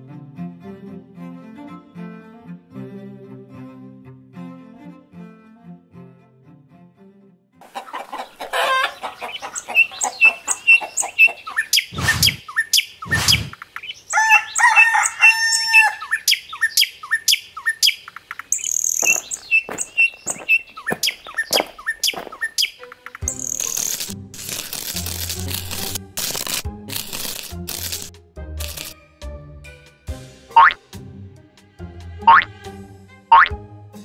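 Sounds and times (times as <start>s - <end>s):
small birds chirping: 7.6s - 24.1s
rooster crowing: 8.4s - 9.4s, 14.1s - 16.2s.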